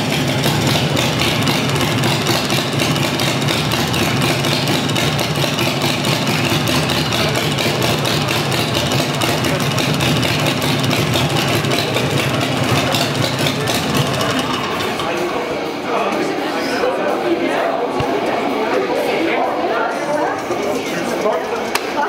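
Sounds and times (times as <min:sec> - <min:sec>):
motorcycle engine idling: 0:00.0 - 0:15.3.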